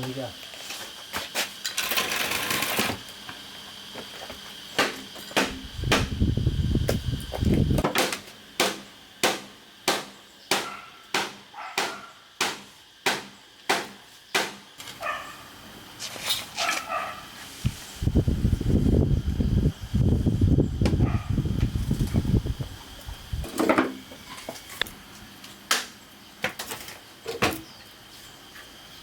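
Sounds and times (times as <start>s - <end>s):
tool striking bamboo: 4.8s - 6.2s, 7.8s - 14.9s.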